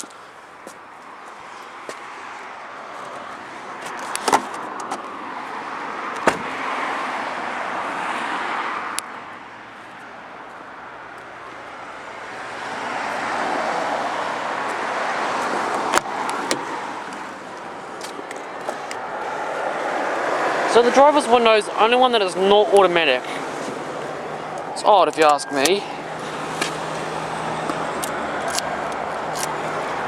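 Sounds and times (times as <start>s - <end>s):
window glass clunk: 6.2s - 6.6s.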